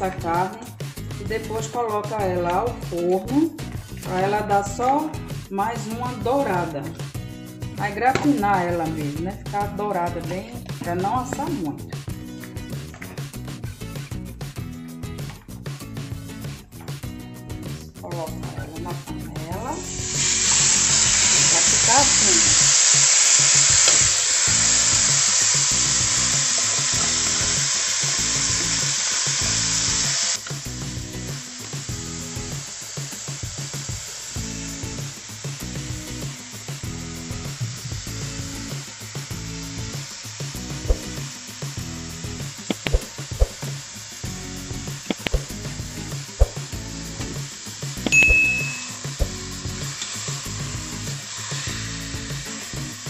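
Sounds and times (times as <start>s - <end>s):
background music: 0.0s - 53.0s
meat sizzling in hot oil: 18.4s - 53.0s.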